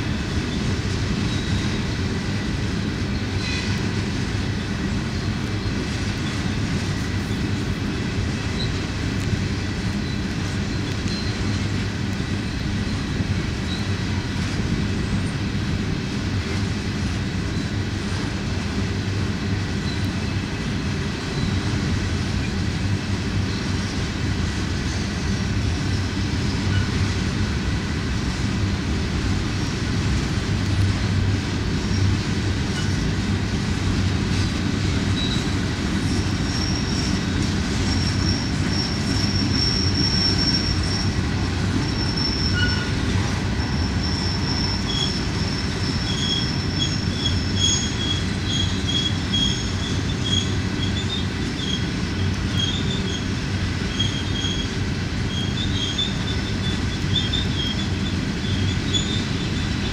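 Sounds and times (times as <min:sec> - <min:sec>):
freight wheels rumbling on rail: 0:00.0 - 0:59.9
wheels squealing on a curve: 0:35.1 - 0:59.9.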